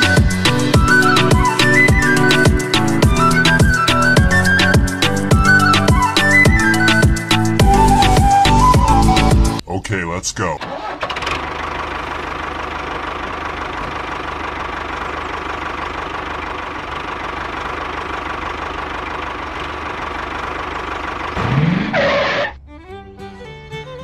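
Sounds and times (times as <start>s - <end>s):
music: 0.0s - 9.6s, 22.6s - 24.0s.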